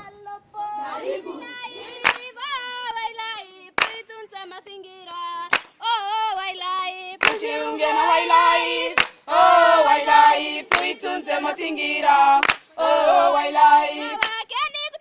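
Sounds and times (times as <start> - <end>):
children singing in chorus: 0.0 - 2.6, 7.2 - 14.3
person singing unaccompanied: 0.0 - 15.0
hand claps: 1.9 - 2.4, 3.8 - 4.1, 5.5 - 5.8, 7.2 - 7.5, 9.0 - 9.2, 10.7 - 11.0, 12.4 - 12.7, 14.2 - 14.4.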